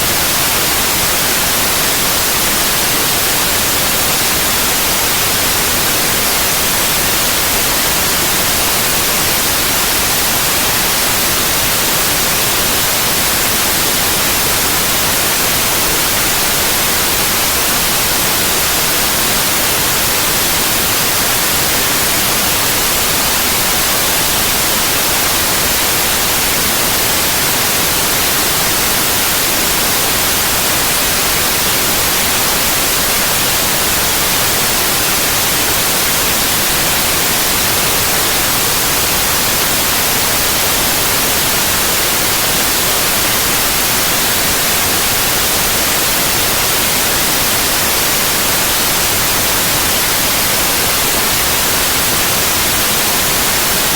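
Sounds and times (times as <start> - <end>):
white noise hiss: 0.0 - 53.9.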